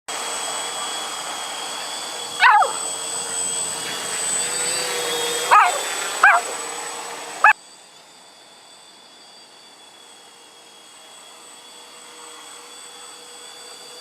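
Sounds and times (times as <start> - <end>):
dog barking: 2.4 - 2.9, 5.5 - 6.6.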